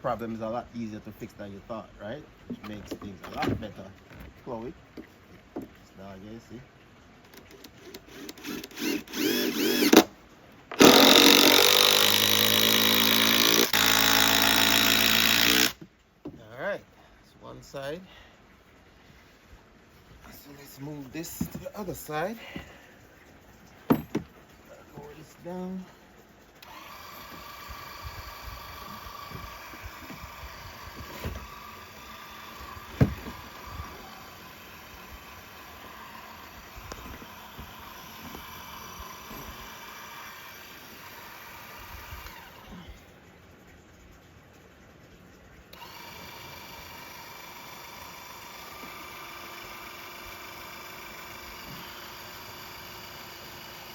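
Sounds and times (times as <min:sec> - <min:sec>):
power drill driving screw into wood: 0:07.5 - 0:10.1, 0:10.7 - 0:15.8, 0:26.6 - 0:42.6, 0:45.7 - 0:53.9
electric jack motor whining: 0:07.9 - 0:10.1, 0:10.7 - 0:15.8, 0:26.6 - 0:42.8, 0:45.7 - 0:53.9.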